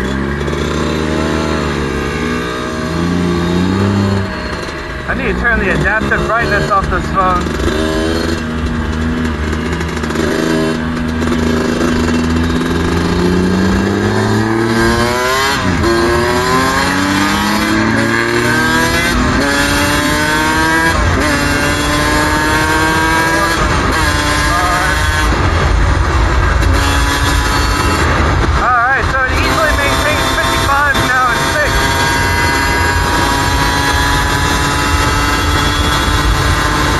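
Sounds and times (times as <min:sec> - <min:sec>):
two-stroke motorcycle engine accelerating: 0:00.0 - 0:36.9.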